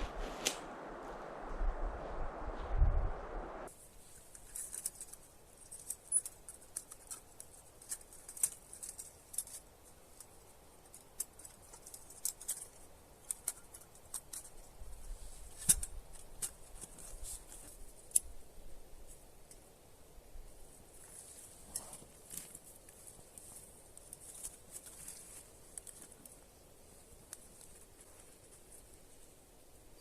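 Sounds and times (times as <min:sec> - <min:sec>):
loud snap: 0:00.0 - 0:01.0.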